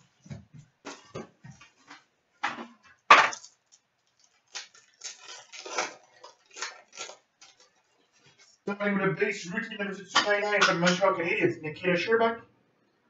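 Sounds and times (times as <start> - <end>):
foil pack crinkling and tearing: 3.2 - 8.6.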